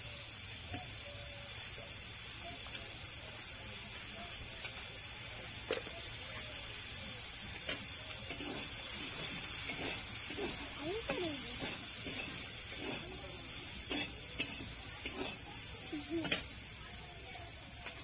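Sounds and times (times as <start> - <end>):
potatoes and peas frying in oil: 0.0 - 18.0.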